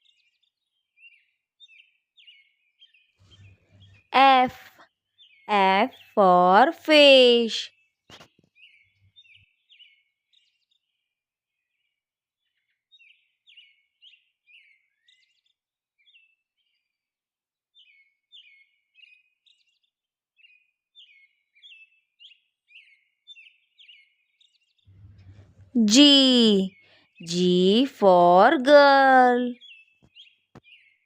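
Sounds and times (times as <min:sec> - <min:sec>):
faint birds chirping: 0:02.2 - 0:06.6, 0:24.9 - 0:31.0.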